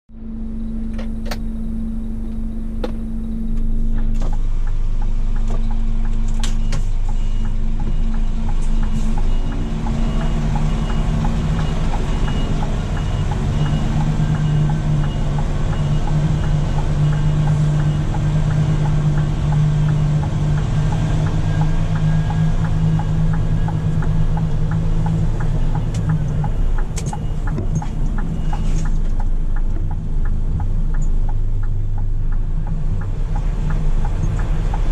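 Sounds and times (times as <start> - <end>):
truck diesel engine running: 0.1 - 34.9
faint high-pitched pulsing beep: 0.2 - 4.0.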